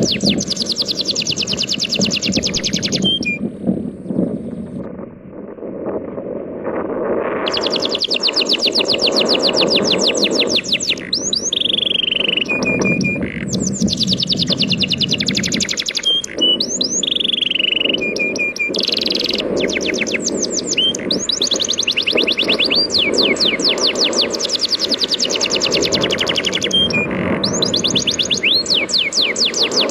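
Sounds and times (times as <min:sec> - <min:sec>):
songbird singing trills: 0:00.0 - 0:03.5, 0:07.5 - 0:29.9.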